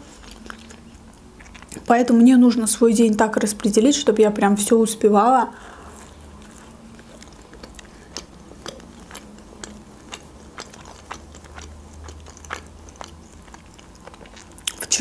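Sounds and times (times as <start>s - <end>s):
person chewing: 0.0s - 1.9s, 5.6s - 15.0s.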